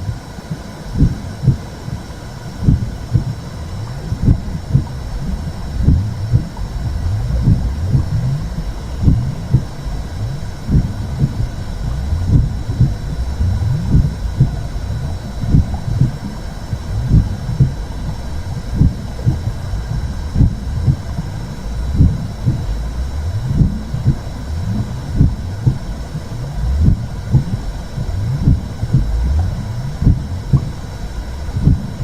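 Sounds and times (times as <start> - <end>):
double heartbeat: 0.0 - 32.0
muffled whooshing rumble: 0.0 - 32.0.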